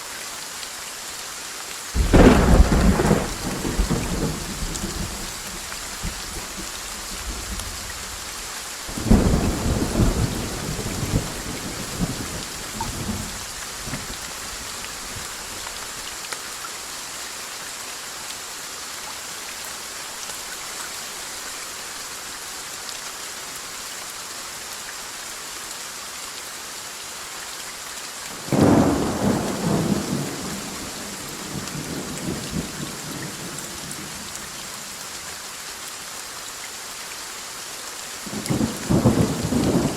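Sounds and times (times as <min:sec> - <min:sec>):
steady rain falling: 0:00.0 - 0:39.9
thunder rumbling: 0:02.0 - 0:06.7, 0:08.9 - 0:14.1.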